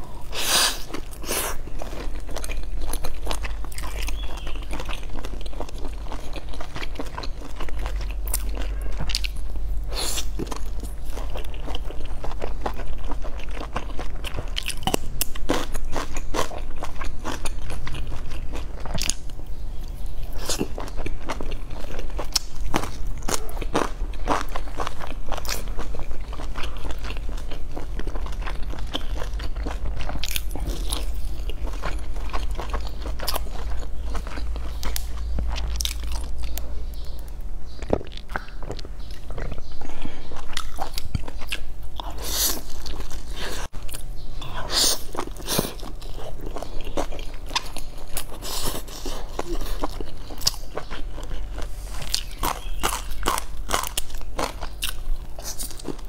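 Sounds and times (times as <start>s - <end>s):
crunchy chewing and biting: 0.0s - 56.0s
low hum: 16.6s - 48.4s.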